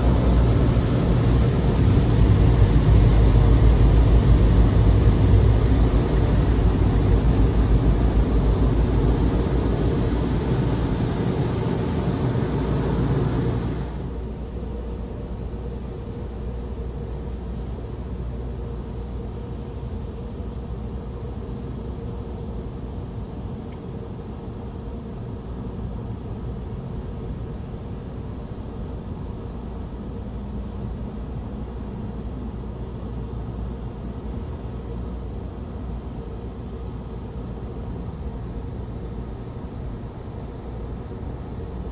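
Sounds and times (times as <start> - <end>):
air dryers blowing: 0.0 - 14.2
steady rumble: 0.0 - 41.9.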